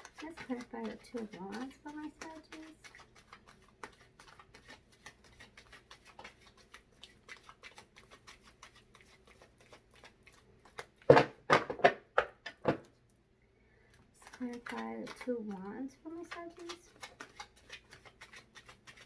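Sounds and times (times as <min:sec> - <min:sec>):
cards being shuffled: 0:00.0 - 0:10.9, 0:16.1 - 0:19.0.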